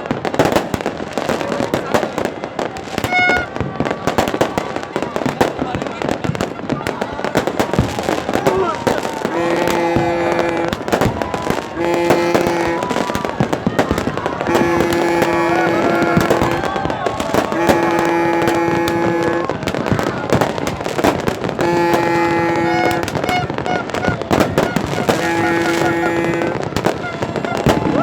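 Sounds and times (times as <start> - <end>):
fireworks crackling and popping: 0.0 - 28.0
horn blasts: 3.0 - 3.7, 9.1 - 28.0.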